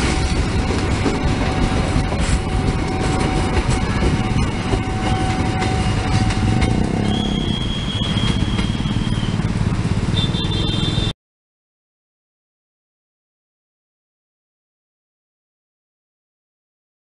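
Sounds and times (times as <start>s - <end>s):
steady high tone: 0.0s - 11.1s
train rumbling over rails: 0.0s - 11.1s
motorcycles running: 2.8s - 11.1s.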